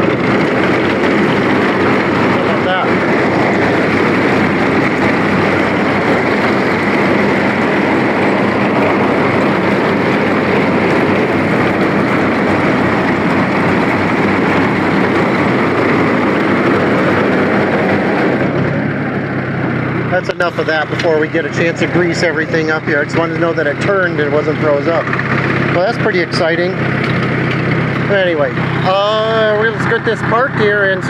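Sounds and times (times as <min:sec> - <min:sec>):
corn picker mechanical noise: 0:00.0 - 0:31.0
tractor engine running: 0:00.0 - 0:31.0.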